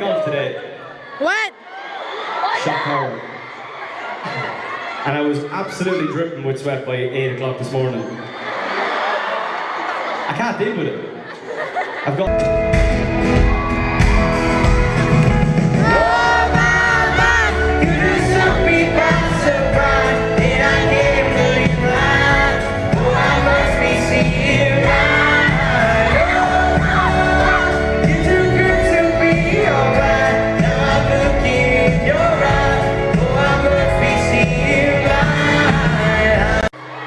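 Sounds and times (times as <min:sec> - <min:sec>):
crowd shouting and whooping: 0:00.0 - 0:06.4, 0:07.3 - 0:10.4, 0:13.0 - 0:29.0, 0:35.2 - 0:37.0
live pop band playing: 0:12.3 - 0:36.7
person singing: 0:15.8 - 0:36.7.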